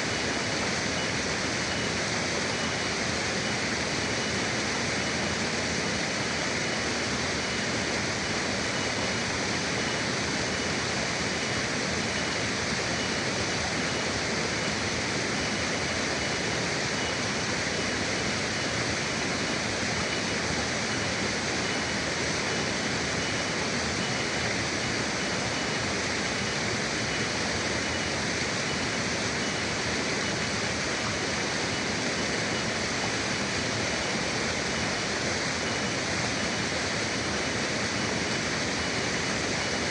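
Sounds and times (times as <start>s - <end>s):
river water rushing: 0.0s - 39.9s
faint steady high tone: 1.0s - 3.6s.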